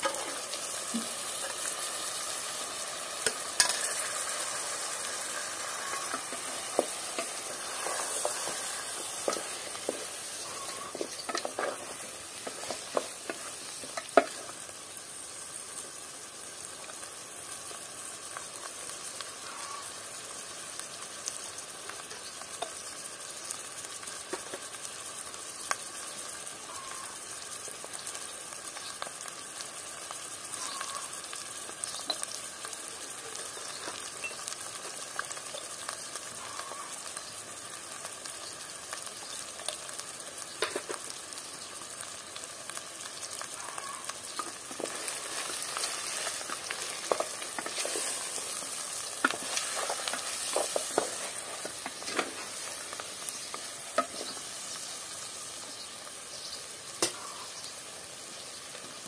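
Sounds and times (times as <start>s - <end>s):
food sizzling in hot oil: 0.0s - 59.0s
wooden spatula scraping a pot: 5.7s - 13.6s.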